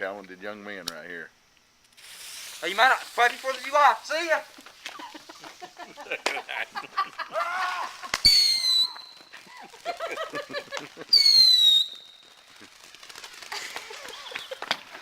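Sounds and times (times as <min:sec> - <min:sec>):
firework whistles: 0:01.9 - 0:15.0
voices: 0:02.6 - 0:11.2.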